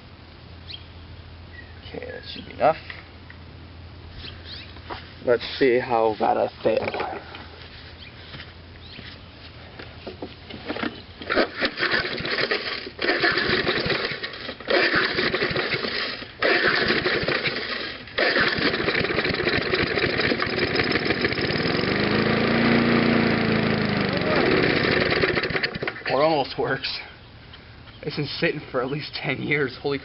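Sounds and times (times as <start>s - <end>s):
mower engine pull-starting: 10.6s - 26.3s.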